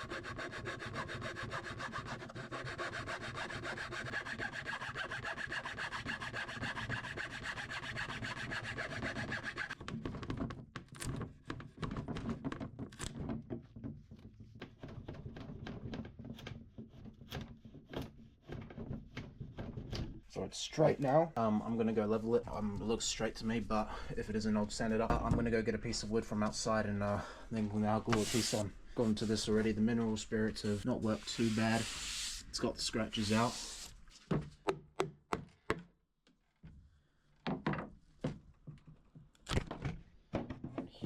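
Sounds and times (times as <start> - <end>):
rasping scrape on wood: 0.0 - 9.8, 30.6 - 32.4.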